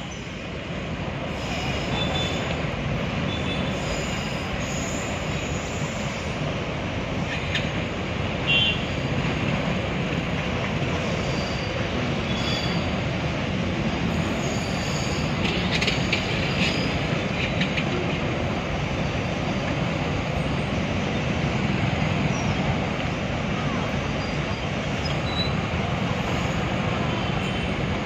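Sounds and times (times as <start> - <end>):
train wagons rumbling on rails: 0.0 - 28.0
wheel squeals: 11.1 - 13.0, 24.2 - 25.6.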